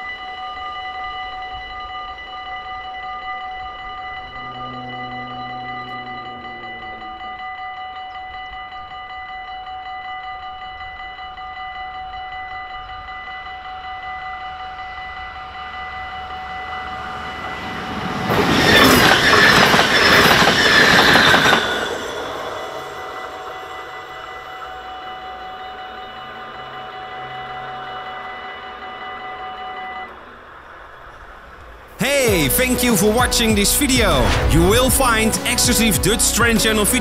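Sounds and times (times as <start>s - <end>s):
level crossing warning bell: 0.0s - 34.3s
train wheels on rails: 8.4s - 37.0s.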